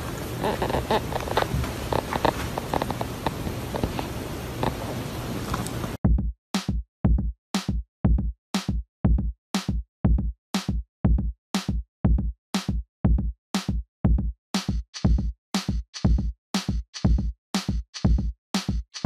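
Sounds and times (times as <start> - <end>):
music with steady beat: 6.1 - 19.0.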